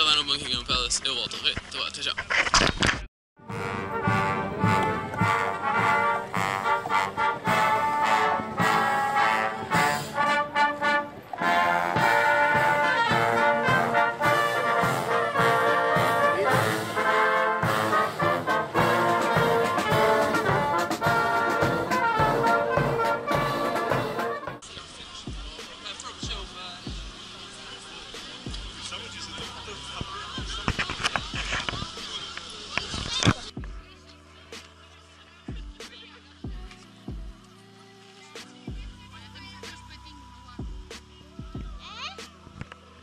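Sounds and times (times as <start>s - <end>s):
brass band music: 3.4s - 24.7s.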